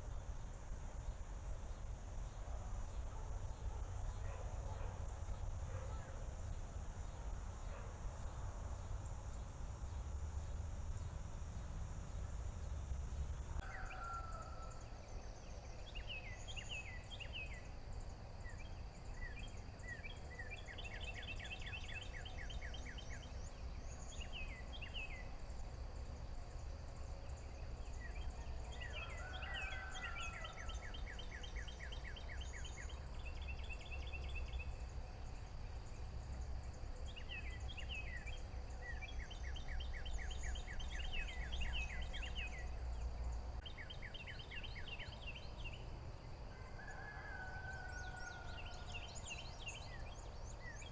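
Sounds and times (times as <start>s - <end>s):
steady low rumble: 8.1s - 13.6s.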